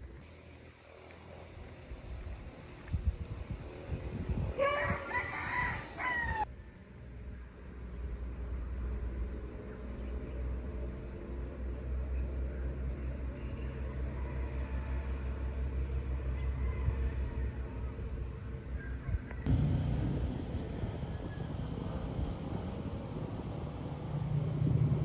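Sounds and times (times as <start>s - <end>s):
rooster crowing: 4.6s - 6.4s
small birds chirping: 19.5s - 25.0s
steady low hum: 19.5s - 25.0s.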